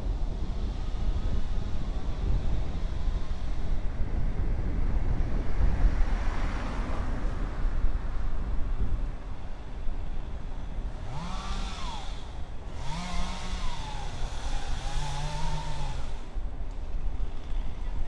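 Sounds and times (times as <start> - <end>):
wind rumble on microphone: 0.0 - 18.0
small engine revving: 10.8 - 16.4.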